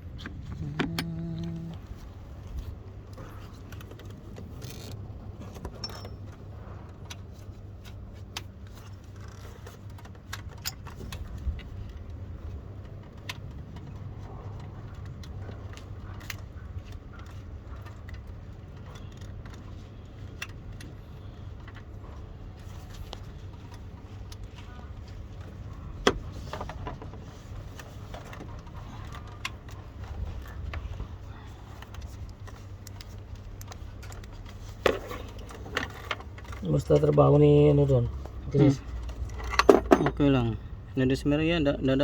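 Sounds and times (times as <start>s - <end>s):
steady low hum: 0.0s - 9.1s
hand tools clinking on metal: 38.6s - 40.4s.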